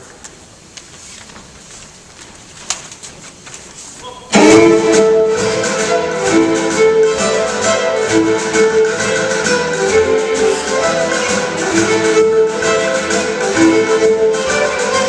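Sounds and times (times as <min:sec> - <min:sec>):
plucked-string rhythm: 0:04.1 - 0:15.0
fiddle tune with chamber orchestra: 0:04.4 - 0:15.0.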